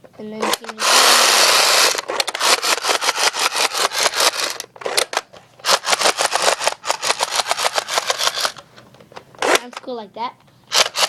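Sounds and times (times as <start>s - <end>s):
toy gun mechanism clicking: 0.4s - 8.6s, 10.7s - 11.0s.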